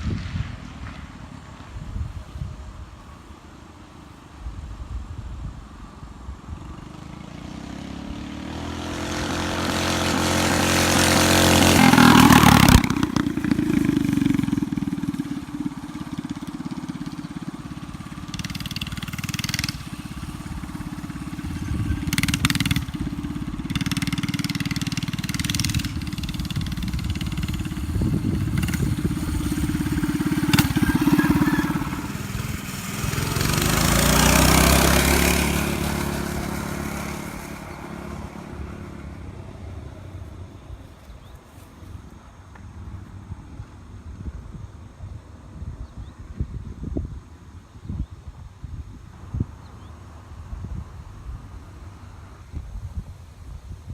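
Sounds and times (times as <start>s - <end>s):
mini bike engines running: 6.0s - 44.8s.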